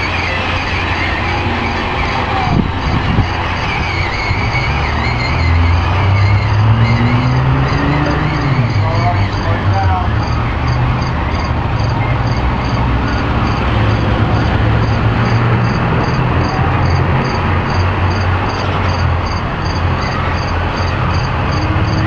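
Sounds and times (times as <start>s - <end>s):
broad rushing noise: 0.0s - 22.0s
crickets chirping: 0.0s - 22.0s.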